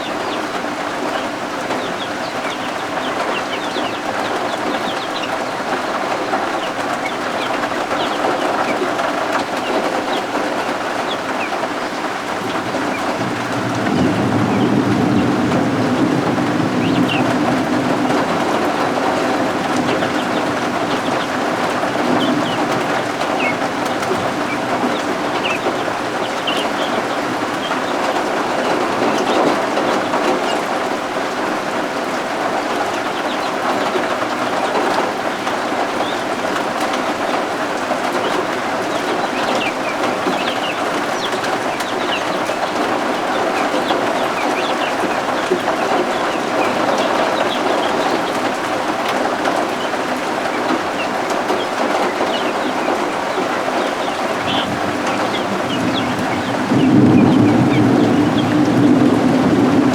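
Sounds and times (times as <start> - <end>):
baby guinea fowl peeping: 0.0 - 13.6, 14.5 - 31.6, 32.2 - 58.8
steady rain: 0.0 - 59.9.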